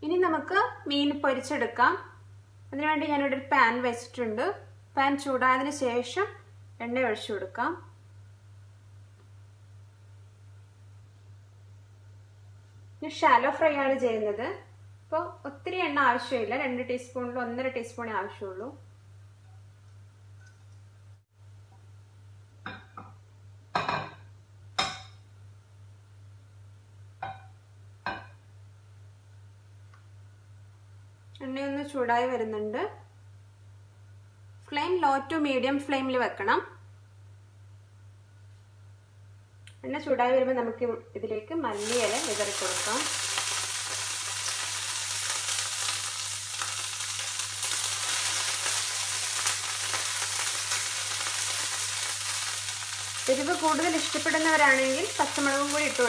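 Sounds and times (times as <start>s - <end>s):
leaves sizzling in hot oil: 41.7s - 56.0s.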